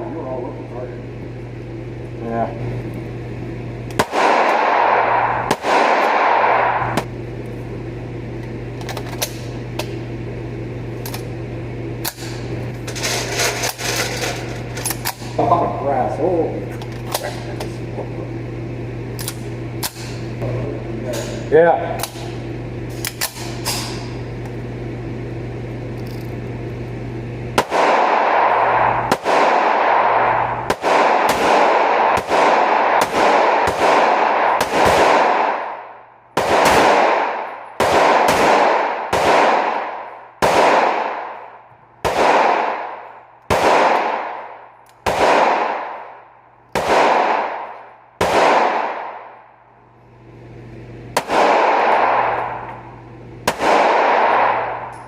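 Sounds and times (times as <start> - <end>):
low hum: 0.0 - 55.0
gunshots echoing: 4.0 - 7.1, 27.6 - 49.5, 51.1 - 52.7, 53.4 - 55.0.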